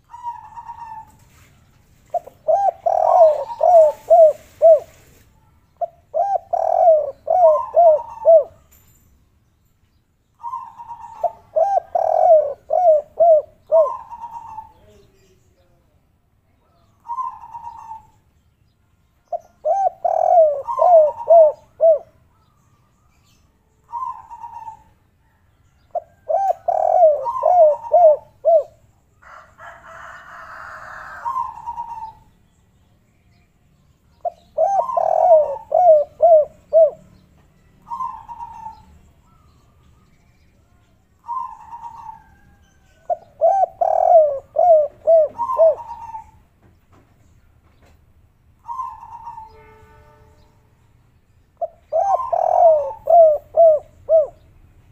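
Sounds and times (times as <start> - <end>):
dove cooing: 0.0 - 5.2, 5.8 - 8.7, 10.4 - 15.0, 17.0 - 18.2, 19.3 - 22.2, 23.8 - 28.8, 30.4 - 32.3, 34.2 - 37.2, 37.8 - 39.6, 41.2 - 46.4, 48.6 - 49.6, 51.6 - 54.4.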